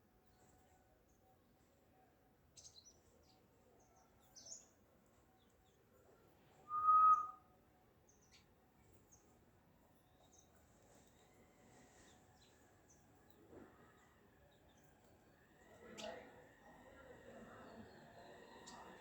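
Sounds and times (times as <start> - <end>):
whistled note: 6.7 - 7.4.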